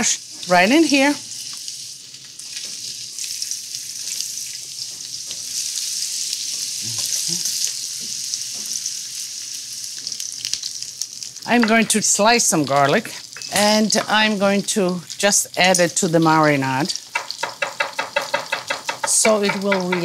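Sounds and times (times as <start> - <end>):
squash sizzling in hot oil: 0.0 - 20.0.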